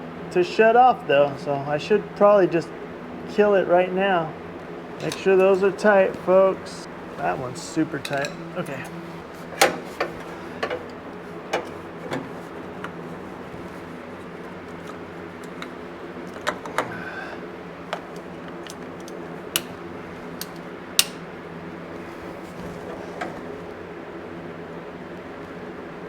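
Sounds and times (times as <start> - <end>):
steady low hum: 0.0 - 26.0
metal hand tools clinking: 5.0 - 5.6, 7.9 - 8.9.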